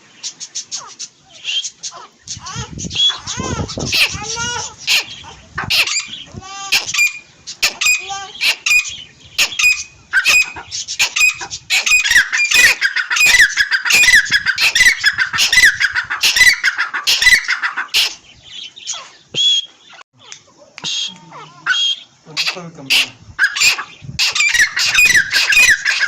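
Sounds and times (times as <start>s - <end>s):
francolins calling: 0.0s - 26.0s.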